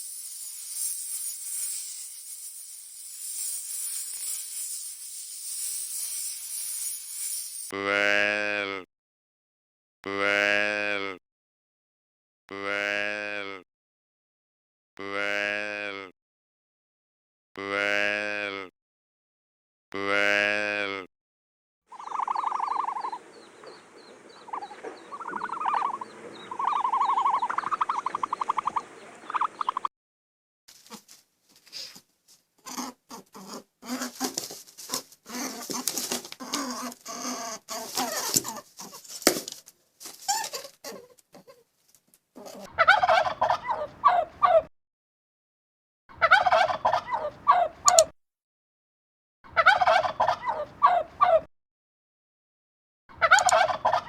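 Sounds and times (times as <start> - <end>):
turkeys gobbling: 21.9 - 23.2, 24.5 - 29.9, 42.8 - 44.6, 46.2 - 48.1, 49.6 - 51.4, 53.2 - 54.0
pitched animal calls: 24.5 - 29.9.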